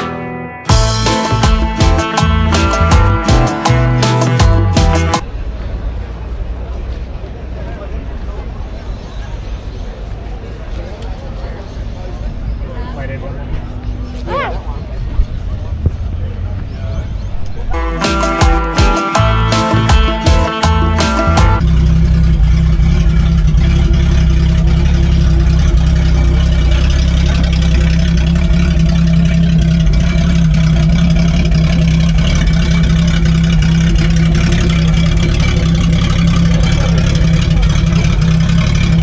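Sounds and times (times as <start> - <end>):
car engine idling: 17.8 - 39.0.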